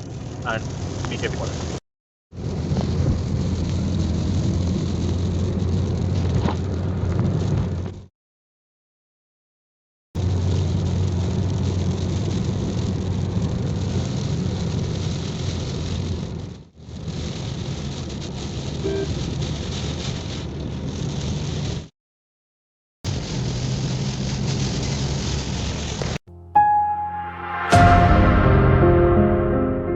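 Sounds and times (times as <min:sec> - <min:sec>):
rain hitting a car: 0:00.0 - 0:01.8, 0:02.4 - 0:08.1, 0:10.2 - 0:21.9, 0:23.1 - 0:26.2
car road and engine noise: 0:00.0 - 0:08.1, 0:10.2 - 0:21.9, 0:23.1 - 0:26.7.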